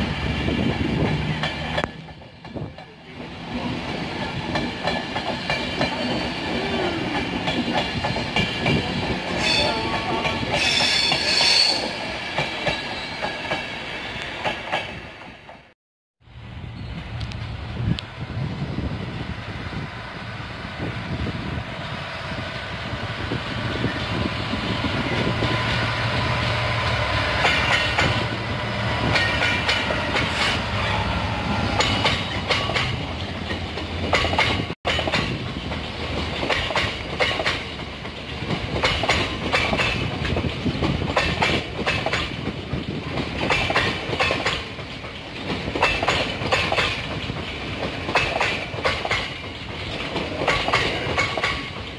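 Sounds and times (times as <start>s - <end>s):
train wheels clacking over rail joints: 0.6s - 13.7s, 27.2s - 30.6s, 31.7s - 51.9s
diesel locomotive engine drone: 16.2s - 41.2s.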